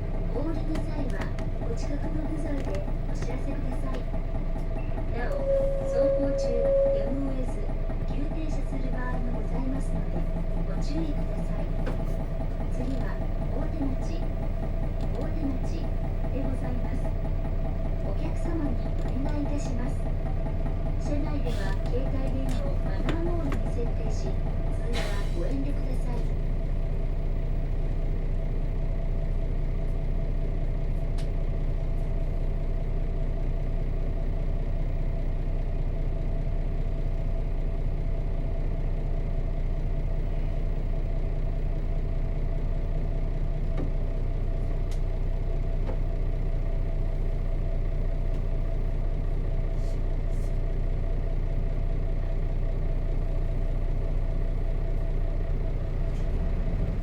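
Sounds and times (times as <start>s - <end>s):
bus diesel engine idling: 0.0s - 57.0s.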